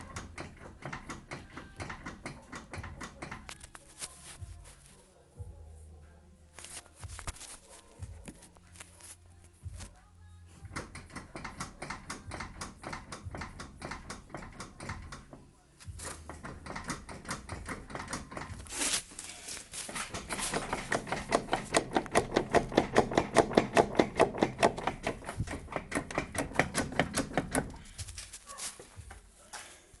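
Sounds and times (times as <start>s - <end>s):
steering rack knocking: 0.0s - 3.5s, 10.6s - 15.4s, 16.0s - 18.7s, 19.8s - 28.1s.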